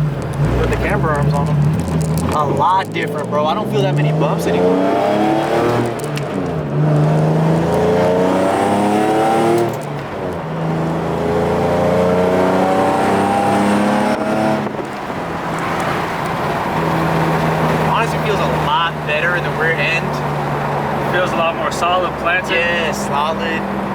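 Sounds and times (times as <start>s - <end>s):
car engine accelerating hard: 0.0s - 23.9s.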